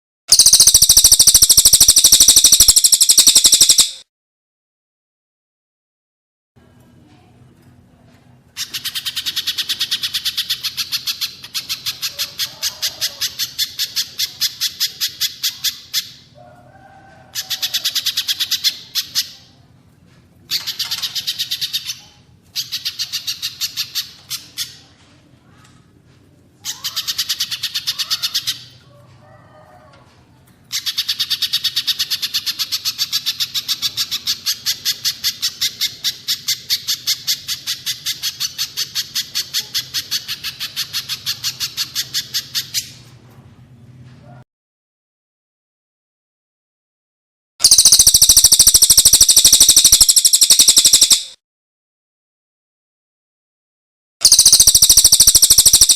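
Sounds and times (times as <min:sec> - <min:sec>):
bird fast high sharp notes: 0:00.3 - 0:04.0, 0:47.6 - 0:51.4, 0:54.2 - 0:55.9.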